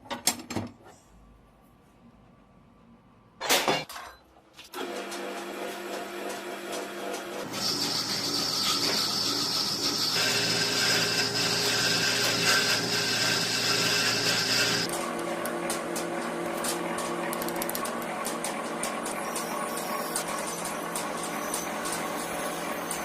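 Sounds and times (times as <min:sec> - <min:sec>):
electric power tool whining: 0:07.4 - 0:14.9.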